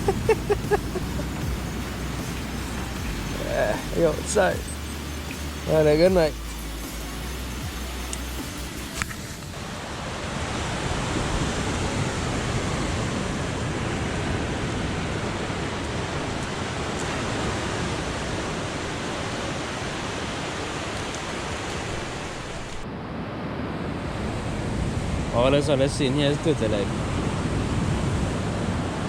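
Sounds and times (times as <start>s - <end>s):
sea surf washing onto beach: 0.0s - 4.7s, 8.2s - 29.0s.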